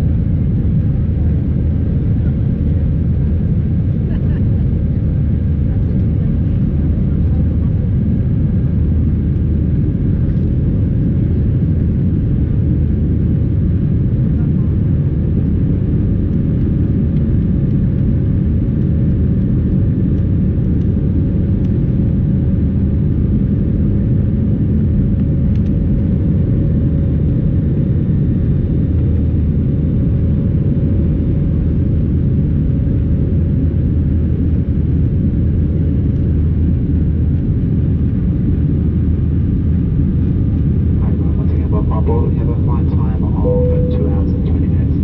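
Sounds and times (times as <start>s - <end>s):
airliner cabin engine rumble: 0.0s - 45.0s
faint steady hum: 24.7s - 45.0s.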